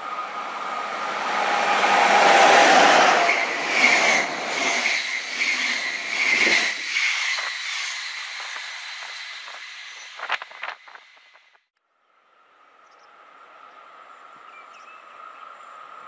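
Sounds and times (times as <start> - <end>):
electric train passing: 0.0 - 10.2.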